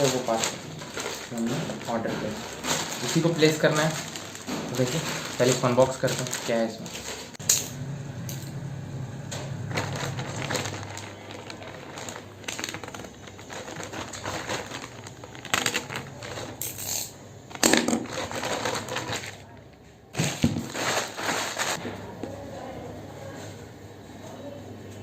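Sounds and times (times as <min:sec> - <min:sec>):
packaging crinkling and tearing: 0:00.0 - 0:07.4, 0:09.3 - 0:19.6, 0:20.2 - 0:21.8.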